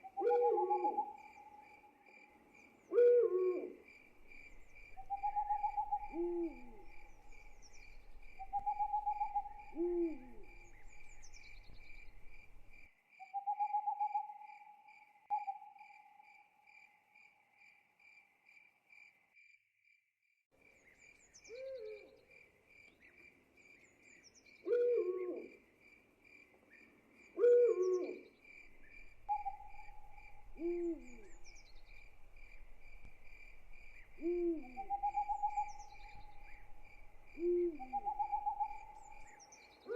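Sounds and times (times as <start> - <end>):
owls hooting: 0.0 - 1.6, 5.0 - 7.7, 8.4 - 11.3, 27.4 - 28.2, 29.0 - 32.3, 33.8 - 39.9
crickets chirping: 0.0 - 19.6, 25.3 - 39.9.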